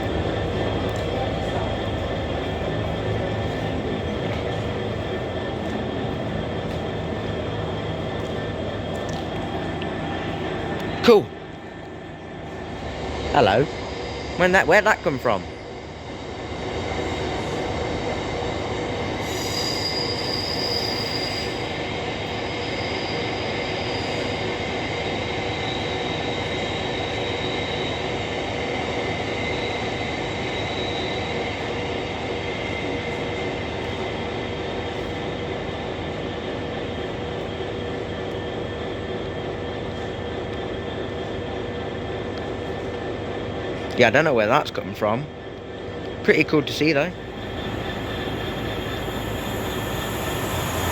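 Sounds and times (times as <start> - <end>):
train running through station: 0.0 - 50.9
wheels squealing on rails: 12.3 - 50.9.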